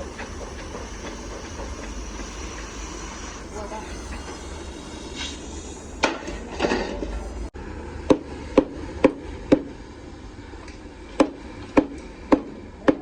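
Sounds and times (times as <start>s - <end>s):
hammer blows: 0.0s - 9.7s.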